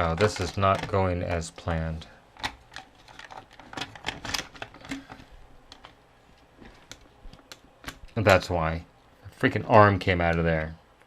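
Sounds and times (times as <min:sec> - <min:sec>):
plastic parts clicking and rattling: 0:00.0 - 0:01.8, 0:02.4 - 0:06.0, 0:06.6 - 0:08.5.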